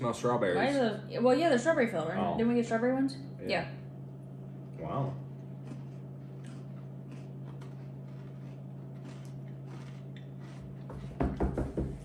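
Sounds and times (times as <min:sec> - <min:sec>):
steady low hum: 0:00.0 - 0:12.0
people chewing crunchy biscuits: 0:05.2 - 0:11.4.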